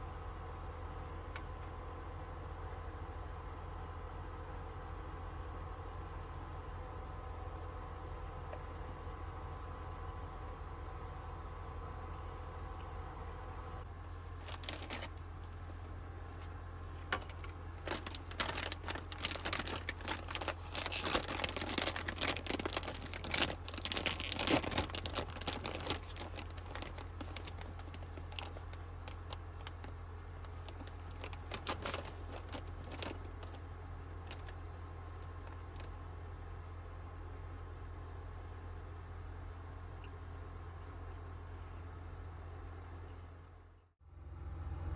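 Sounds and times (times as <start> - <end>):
steady low hum: 0.0 - 44.9
plastic crinkling and rustling: 14.1 - 33.6, 34.2 - 36.0.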